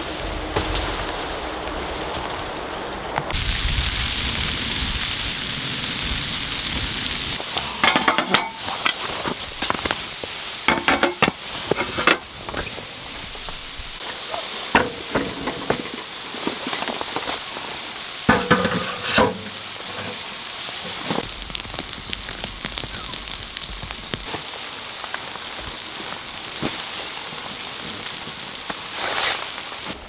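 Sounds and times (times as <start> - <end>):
steady hiss: 0.0 - 30.0
food sizzling in a pan: 3.3 - 29.9
utensil clinking and scraping pan: 7.4 - 13.4, 14.0 - 17.3, 18.3 - 21.2.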